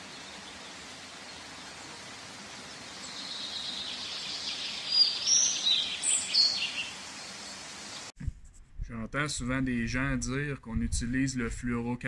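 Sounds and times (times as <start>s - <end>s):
steady hiss: 0.0s - 8.1s
bird chirps: 2.9s - 8.1s.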